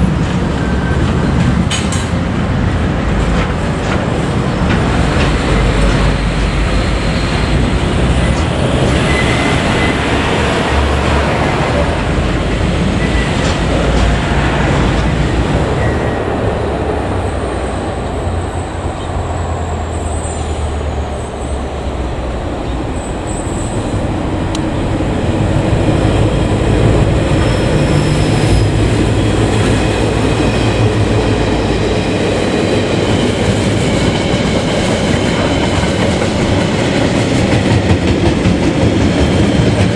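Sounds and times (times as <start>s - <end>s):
diesel locomotive engine hum: 0.0s - 39.9s
freight wagons clacking over rails: 0.1s - 20.4s.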